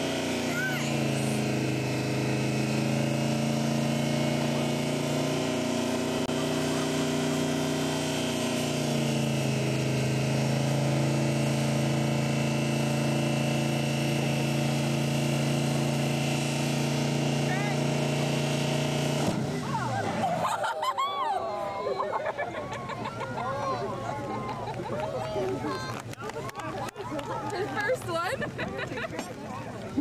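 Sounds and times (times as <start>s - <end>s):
loud engine at high revs: 0.0s - 21.0s.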